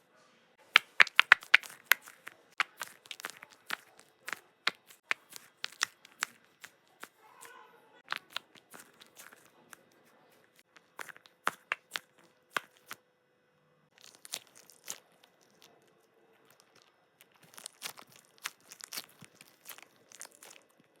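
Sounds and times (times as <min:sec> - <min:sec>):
plastic packaging crinkling and tearing: 0:00.8 - 0:07.2, 0:08.1 - 0:10.0, 0:13.9 - 0:21.0.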